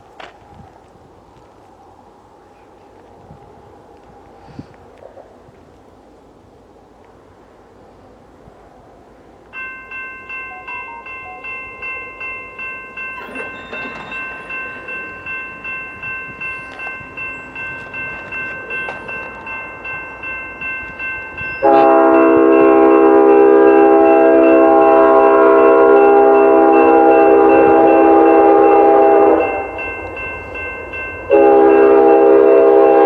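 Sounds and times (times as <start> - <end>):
railroad crossing bell ringing: 9.5 - 33.0
locomotive horn: 21.6 - 29.8, 31.3 - 33.0.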